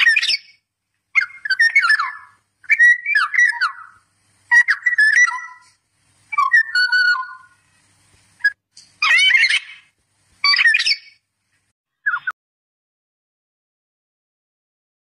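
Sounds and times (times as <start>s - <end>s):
songbird whistling phrases: 0.0s - 0.6s, 1.2s - 7.7s, 8.4s - 11.2s, 12.0s - 12.4s.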